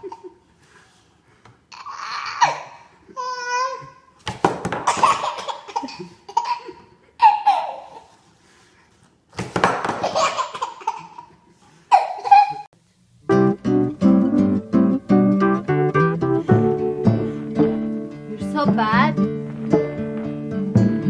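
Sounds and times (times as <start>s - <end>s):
baby laughing: 0.0s - 0.4s, 1.7s - 4.0s, 4.8s - 8.1s, 9.9s - 12.7s
acoustic guitar music: 13.2s - 21.0s.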